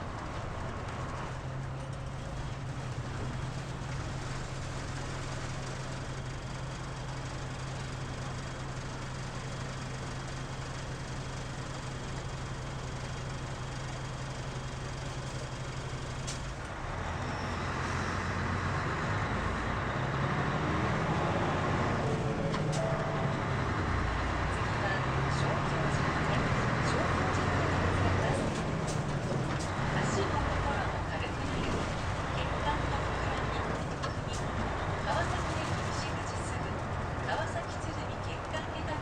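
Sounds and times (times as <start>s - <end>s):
diesel bus engine idling: 0.0s - 39.0s.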